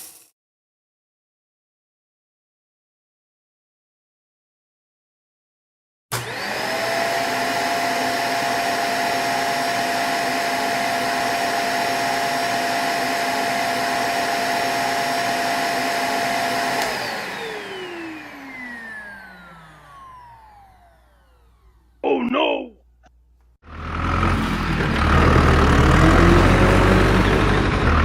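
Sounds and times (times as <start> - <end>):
small electric motor whining: 16.2 - 21.9.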